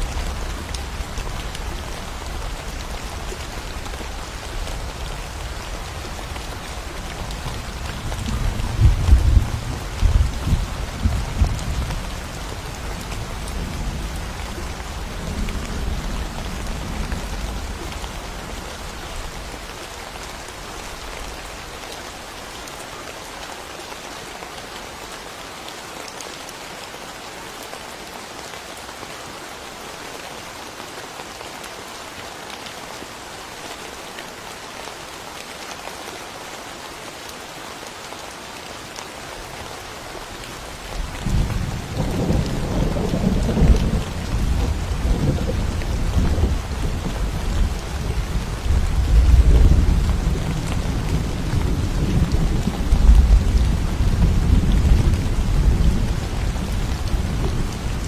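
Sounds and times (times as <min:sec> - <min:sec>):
steady rainfall: 0:00.0 - 0:58.0
thunder rumble: 0:41.2 - 0:58.0.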